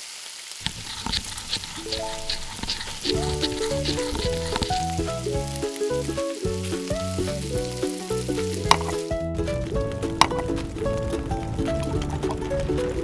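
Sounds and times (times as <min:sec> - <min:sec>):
rice sizzling in a pan: 0:00.0 - 0:12.7
background music with melody and bass: 0:03.1 - 0:13.0.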